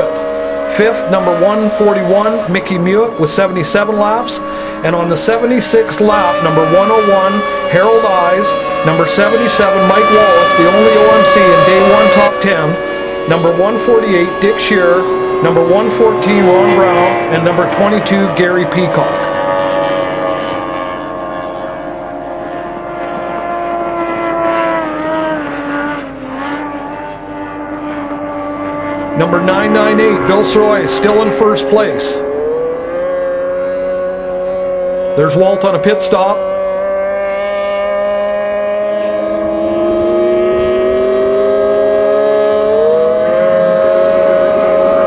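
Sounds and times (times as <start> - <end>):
outboard motors whining: 0.0 - 45.0.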